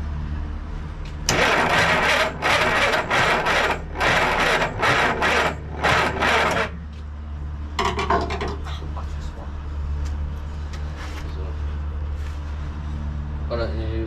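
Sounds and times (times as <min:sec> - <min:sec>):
steady low hum: 0:00.0 - 0:14.0
harsh rasping scraping strokes: 0:01.3 - 0:06.8.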